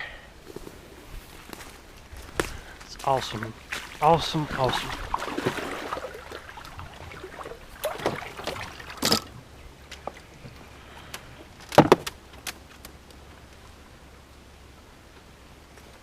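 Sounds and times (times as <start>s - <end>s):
knocks and clunks in boat: 4.6s - 10.6s, 11.5s - 12.2s.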